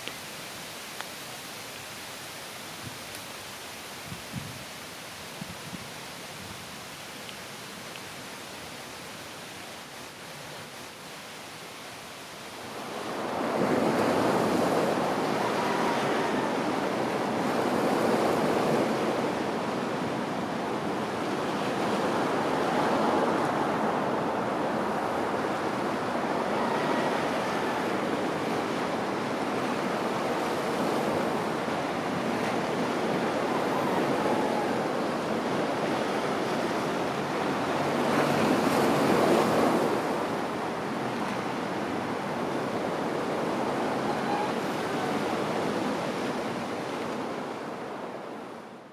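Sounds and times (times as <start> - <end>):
ocean waves breaking: 12.6 - 48.8.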